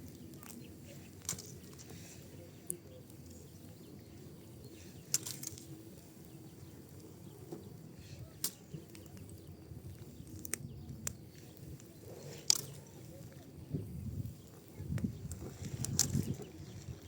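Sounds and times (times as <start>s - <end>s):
low rumble of flames: 0.0s - 17.0s
fire pops and snaps: 8.3s - 13.5s, 14.4s - 16.5s.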